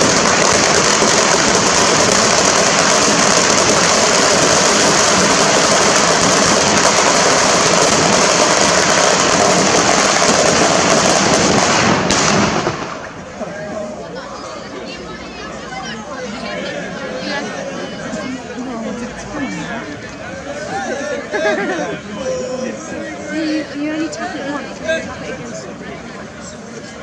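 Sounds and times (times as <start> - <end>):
firecrackers crackling: 0.0 - 13.6.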